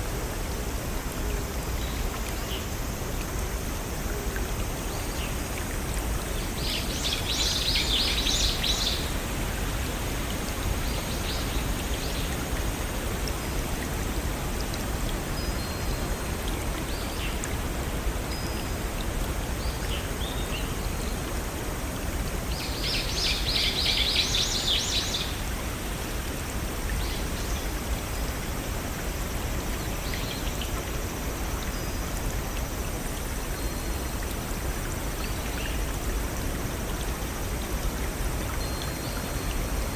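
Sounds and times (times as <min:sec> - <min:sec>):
forest stream and waterfall rushing: 0:00.0 - 0:39.9
songbirds calling: 0:22.5 - 0:25.4.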